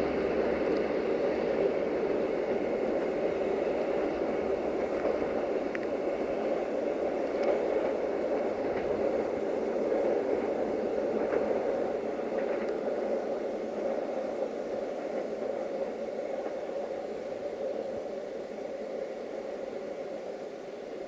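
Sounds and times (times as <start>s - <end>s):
diesel locomotive hum: 0.0s - 21.0s
train coaches rumbling on rails: 0.0s - 21.0s
faint clicks: 0.6s - 0.9s, 4.9s - 6.0s, 12.3s - 13.1s.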